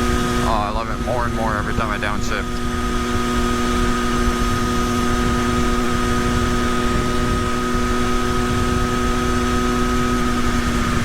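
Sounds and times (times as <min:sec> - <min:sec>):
motorcycle engine running: 0:00.0 - 0:11.0
wind rumble on microphone: 0:02.4 - 0:11.0.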